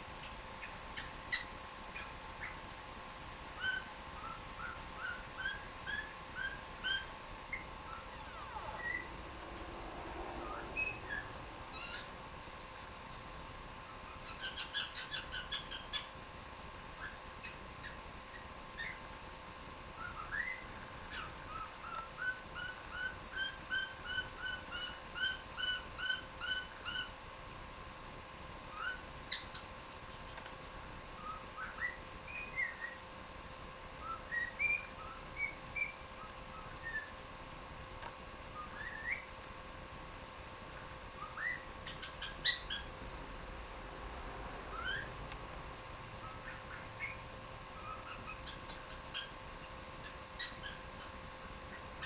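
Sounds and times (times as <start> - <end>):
cockatiel chirps: 3.6 - 9.4, 41.2 - 43.0
cockatiel whistling: 3.6 - 12.1, 41.2 - 43.0, 44.7 - 45.1.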